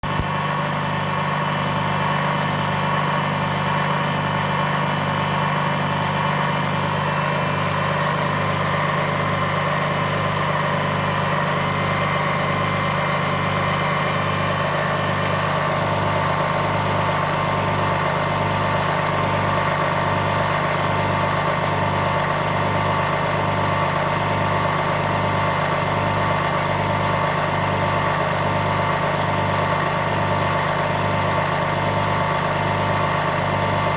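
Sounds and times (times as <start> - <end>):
engine humming with low throb: 0.0 - 33.9.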